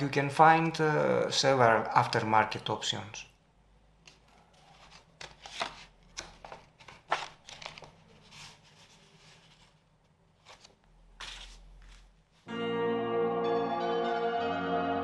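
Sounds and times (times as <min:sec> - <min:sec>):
packaging rustling and crinkling: 0:04.5 - 0:09.8.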